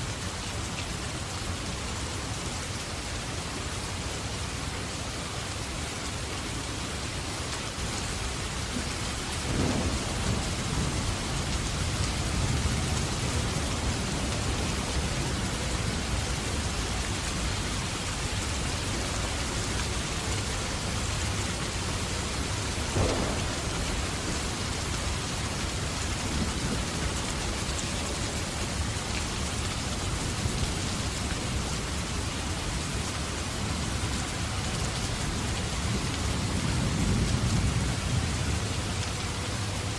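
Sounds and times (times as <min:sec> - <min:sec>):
heavy rain falling: 0:00.0 - 0:39.9
thunder rumbling: 0:08.8 - 0:18.6, 0:22.2 - 0:28.9
sharp thunder cracks: 0:09.4 - 0:12.8, 0:22.8 - 0:25.2.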